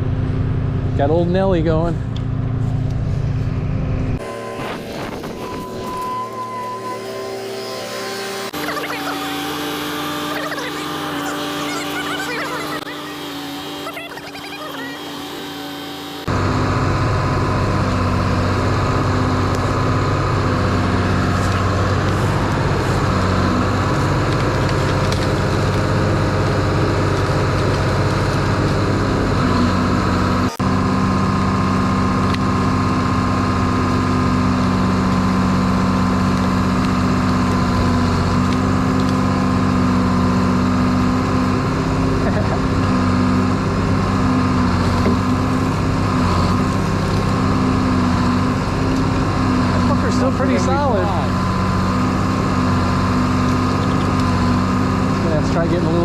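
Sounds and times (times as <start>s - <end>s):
tracked machine engine running: 0.0s - 56.0s.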